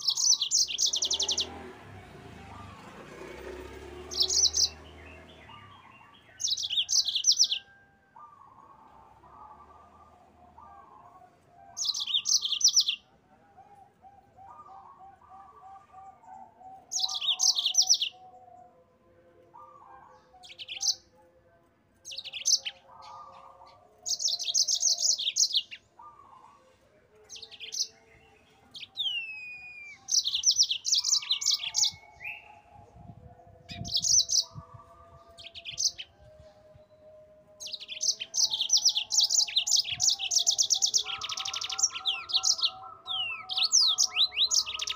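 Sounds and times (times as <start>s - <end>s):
canary trilling: 0.0s - 10.1s, 11.8s - 13.1s, 16.8s - 18.2s, 22.0s - 26.4s, 28.7s - 32.7s, 37.5s - 44.9s
lower bird warbling: 28.8s - 33.0s, 37.6s - 44.9s.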